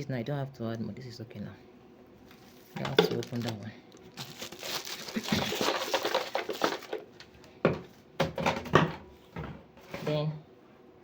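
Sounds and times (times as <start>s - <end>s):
objects rustling and clattering: 2.2s - 10.3s.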